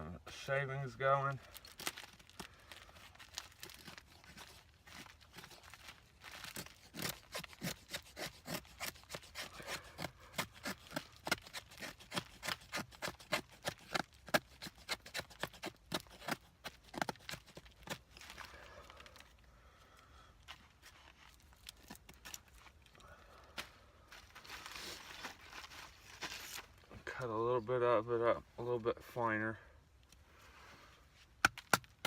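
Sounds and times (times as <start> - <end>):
knife shaving dry wood: 3.1 - 19.2.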